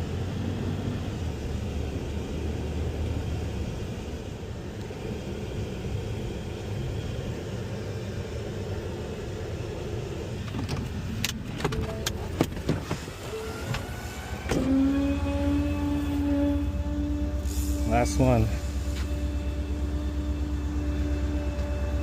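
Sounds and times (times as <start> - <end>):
steady hum with overtones: 0.0 - 22.0
garbage truck engine rumbling: 8.6 - 22.0
sharp clicks and knocks: 10.4 - 13.0.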